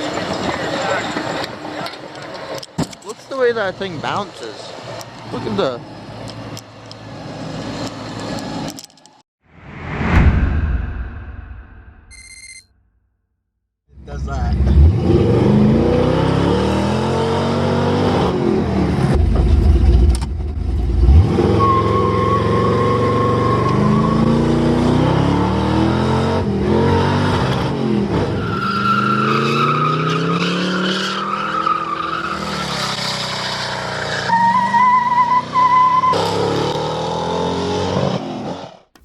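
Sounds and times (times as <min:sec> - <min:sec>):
heavy low rumble: 0:09.5 - 0:12.1.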